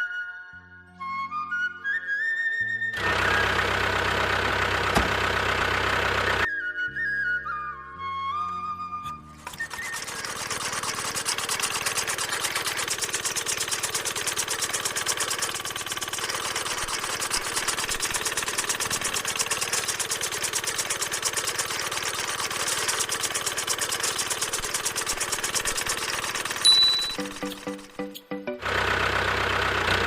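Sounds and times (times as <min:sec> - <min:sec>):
small electric motor rattling: 0:09.4 - 0:28.2.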